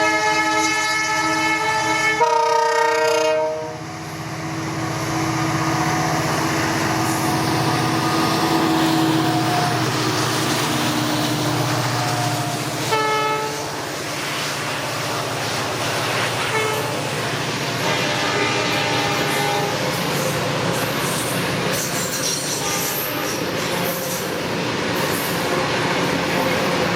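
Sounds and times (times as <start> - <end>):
locomotive air horn: 0.0 - 3.9, 11.9 - 13.8, 16.4 - 17.1, 17.8 - 19.8, 22.6 - 23.4
diesel locomotive engines rumbling: 0.0 - 26.9
freight train passing: 0.0 - 26.9.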